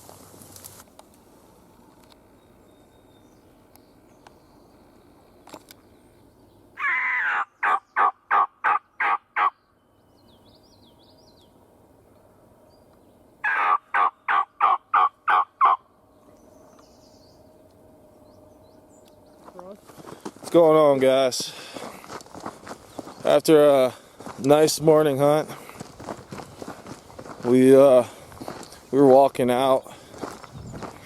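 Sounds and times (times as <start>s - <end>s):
small birds chirping: 2.1s - 8.1s, 8.8s - 13.5s, 15.8s - 31.0s
turkey call: 6.8s - 9.6s, 13.4s - 15.9s.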